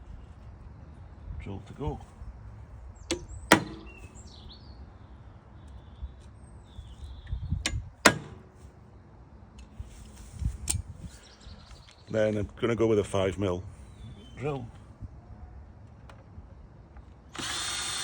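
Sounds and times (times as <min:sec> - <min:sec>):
hammer striking metal punch: 0:03.1 - 0:03.9, 0:07.7 - 0:08.5.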